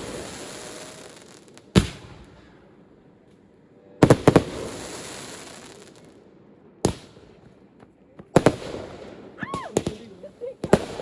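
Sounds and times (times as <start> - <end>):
firework hiss: 0.0 - 2.6, 4.0 - 6.2
firework bangs: 0.0 - 2.7, 4.0 - 6.2, 6.8 - 11.0.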